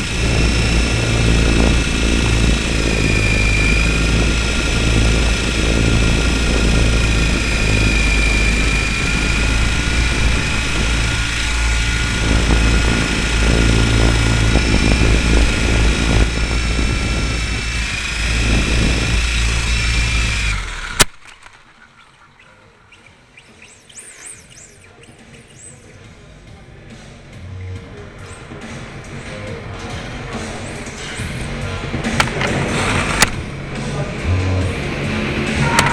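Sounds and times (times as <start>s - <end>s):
rc helicopter motor whine: 0.0s - 26.1s.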